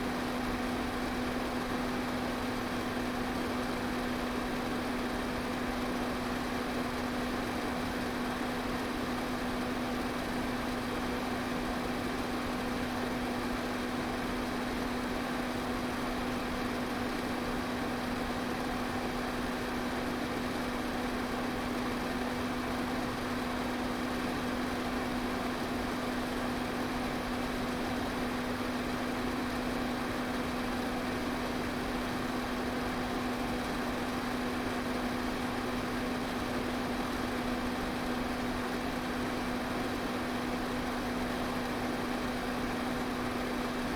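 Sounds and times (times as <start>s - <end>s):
electric fan running: 0.0s - 9.2s.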